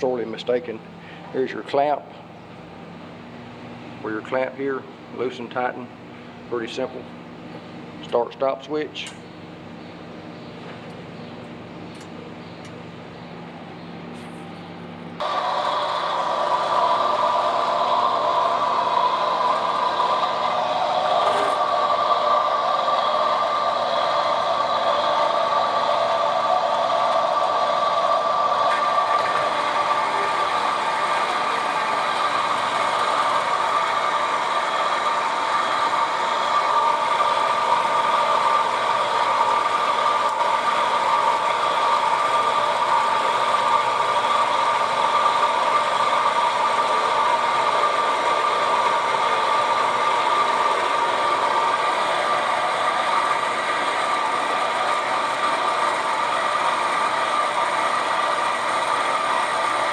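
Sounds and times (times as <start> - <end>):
band saw whining: 15.2 - 59.9.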